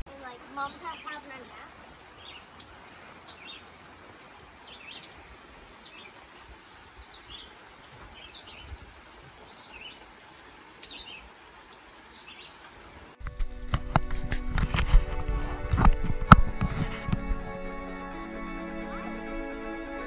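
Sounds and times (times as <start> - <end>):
songbird chirping: 0.0 - 13.2
faint outdoor hiss: 0.0 - 20.0.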